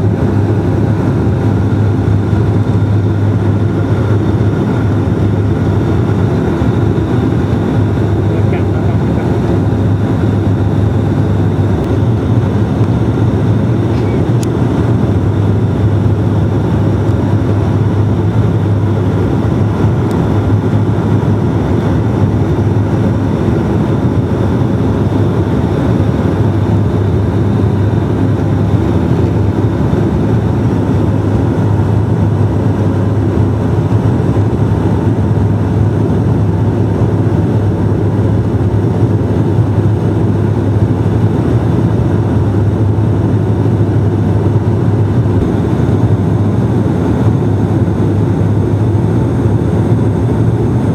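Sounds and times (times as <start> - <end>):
propeller drone in aircraft cabin: 0.0 - 50.9.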